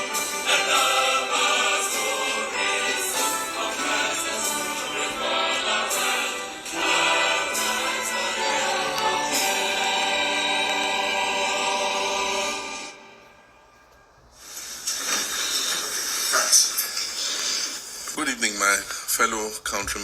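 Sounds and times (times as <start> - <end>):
hissing noise: 0.0 - 13.1, 14.3 - 18.4
choral music: 0.0 - 14.8.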